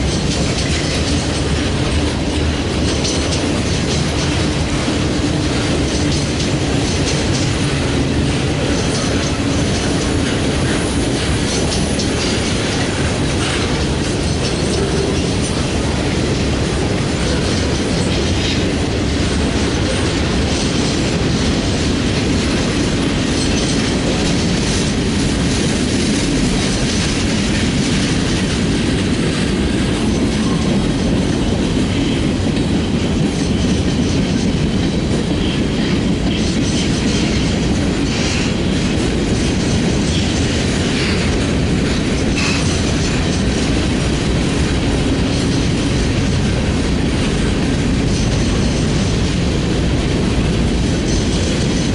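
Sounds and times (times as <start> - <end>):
freight train rumbling past: 0.0 - 51.9
wheels clacking over rails: 0.0 - 51.9
train wheel squeal: 35.4 - 38.6, 42.1 - 43.7.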